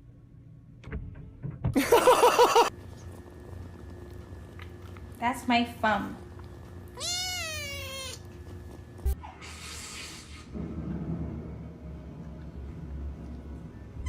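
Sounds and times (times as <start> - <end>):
cat meowing: 7.0 - 8.3.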